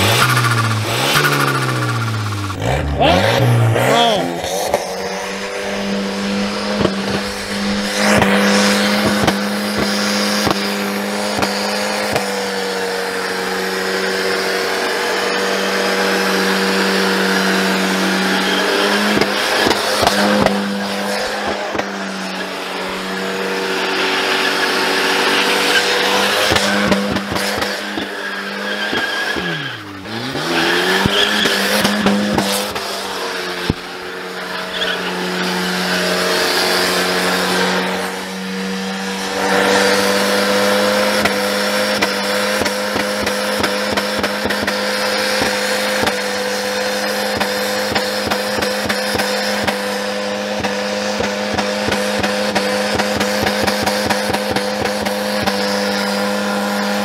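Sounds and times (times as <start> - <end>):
car engine revving high: 0.0 - 57.0
tyres squealing: 16.0 - 44.0.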